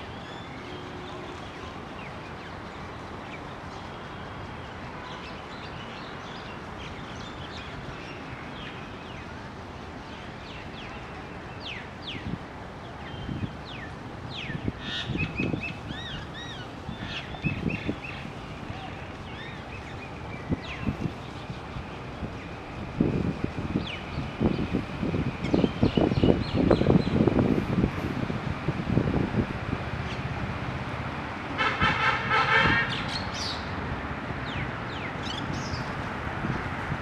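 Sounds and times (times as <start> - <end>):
small birds chirping: 34.6 - 36.9.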